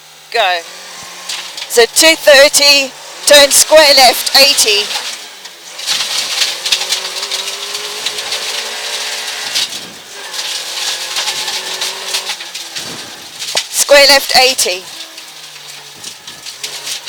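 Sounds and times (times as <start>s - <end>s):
car engine running: 0.0s - 17.0s
tyres hissing on gravel: 0.5s - 17.0s
stones clattering against car: 4.9s - 13.8s, 14.9s - 17.0s.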